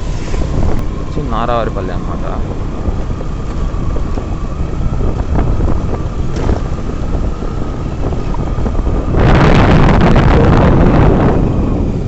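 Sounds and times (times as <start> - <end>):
vehicle engine and road rumble: 0.0 - 12.0
wind buffeting microphone: 0.0 - 12.0.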